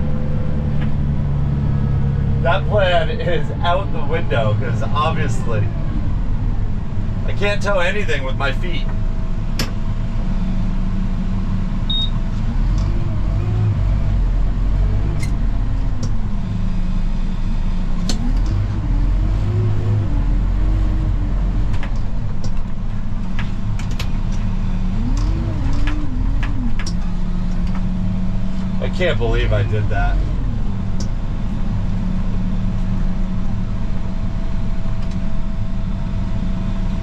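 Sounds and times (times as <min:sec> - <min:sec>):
tractor engine running under load: 0:00.0 - 0:37.0.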